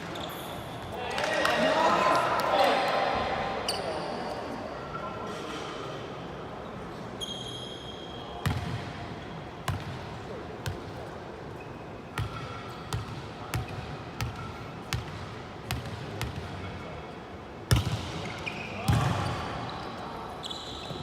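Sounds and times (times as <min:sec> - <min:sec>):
shoe squeaking on court floor: 0:00.0 - 0:00.9, 0:03.7 - 0:05.7, 0:06.9 - 0:09.3, 0:11.5 - 0:14.6, 0:17.8 - 0:21.0.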